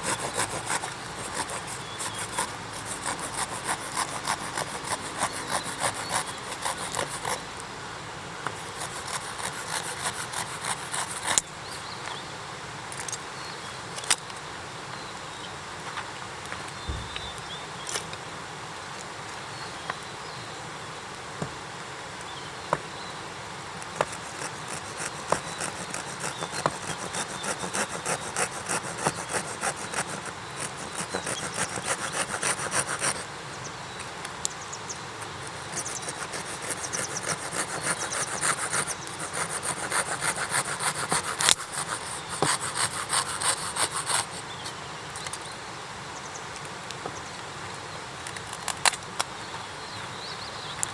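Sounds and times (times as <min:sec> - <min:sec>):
hand saw cutting wood: 0:00.0 - 0:07.5, 0:08.5 - 0:11.5, 0:24.0 - 0:33.3, 0:35.2 - 0:44.5.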